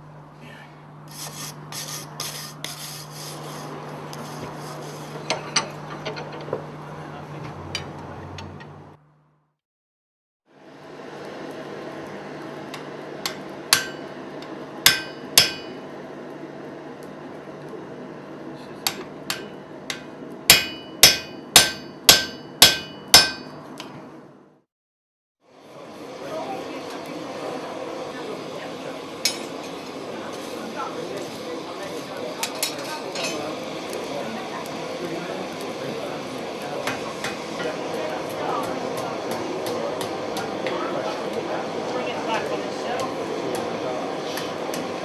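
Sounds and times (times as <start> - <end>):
steel being scraped: 1.1 - 6.4
hammer striking metal on anvil: 12.7 - 15.8, 18.8 - 23.9.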